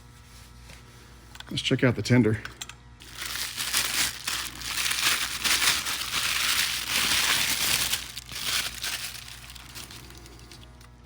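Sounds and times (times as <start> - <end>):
packaging crinkling: 3.0 - 11.0.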